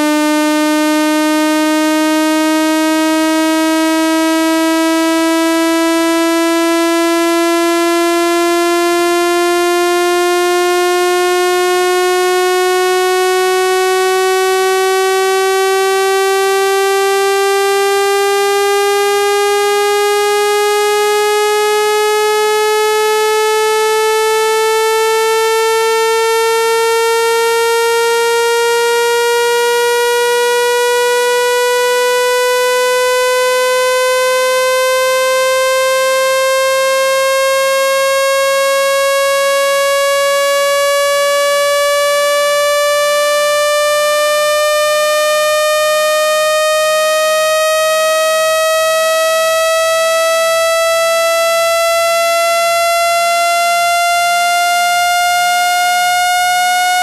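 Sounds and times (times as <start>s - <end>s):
buzzy tone rising in pitch: 0.0s - 57.0s.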